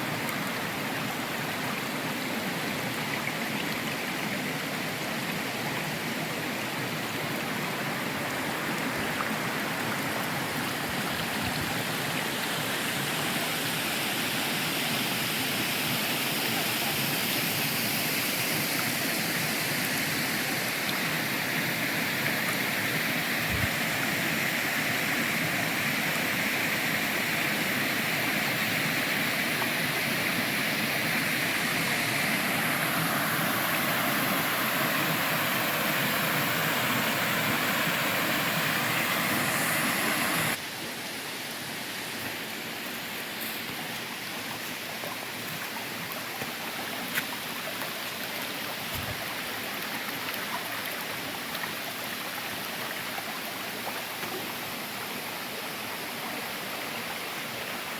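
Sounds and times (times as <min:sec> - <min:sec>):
waterfall rushing: 0:06.8 - 0:52.4.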